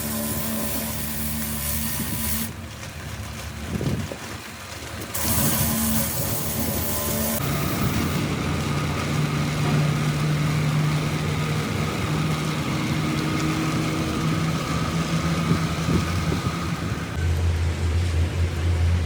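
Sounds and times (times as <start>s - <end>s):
engine idling: 5.2s - 19.0s.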